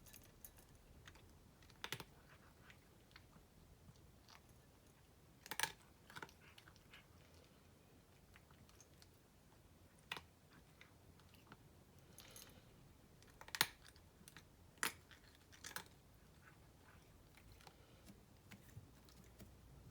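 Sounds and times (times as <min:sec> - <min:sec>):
cat crunching dry kibble: 0:05.4 - 0:09.2, 0:13.2 - 0:19.6.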